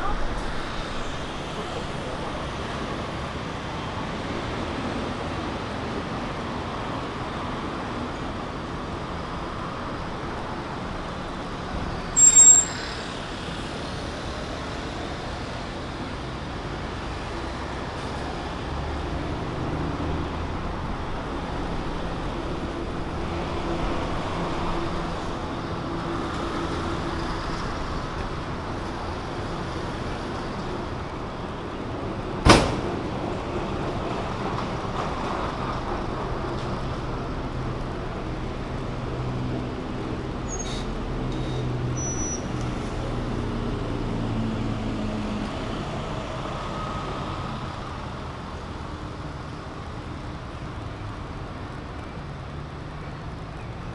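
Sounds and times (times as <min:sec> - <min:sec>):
city street traffic: 0:00.0 - 0:53.9
high-pitched squeal: 0:12.2 - 0:14.0.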